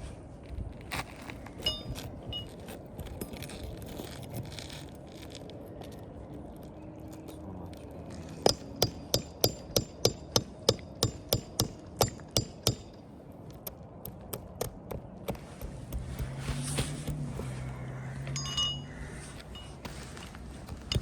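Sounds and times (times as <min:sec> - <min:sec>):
hammer striking nails: 0:08.5 - 0:13.0, 0:13.6 - 0:17.3, 0:20.7 - 0:21.0.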